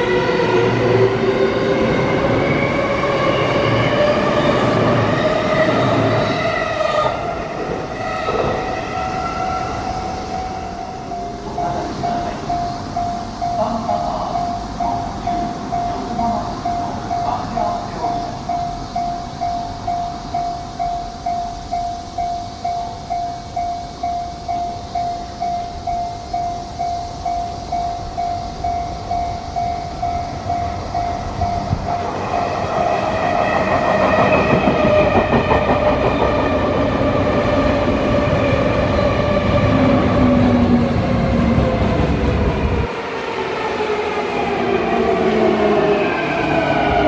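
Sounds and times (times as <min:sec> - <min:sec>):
electric train braking: 0:00.0 - 0:47.0
pulsing warning bell: 0:08.8 - 0:36.9.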